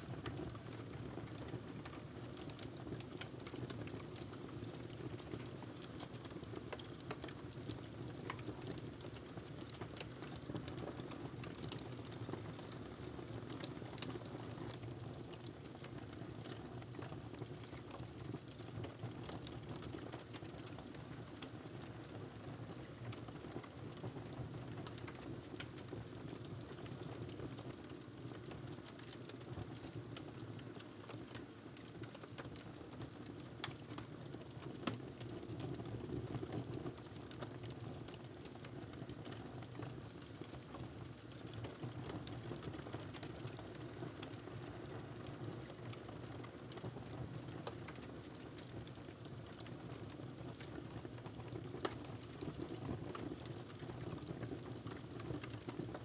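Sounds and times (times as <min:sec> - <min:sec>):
fire popping and ticking: 0:00.2 - 0:56.0.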